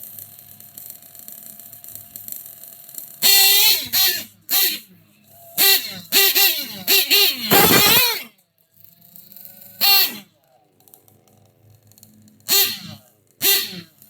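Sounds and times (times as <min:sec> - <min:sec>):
horn blasts: 0:05.6 - 0:08.2, 0:12.5 - 0:13.9.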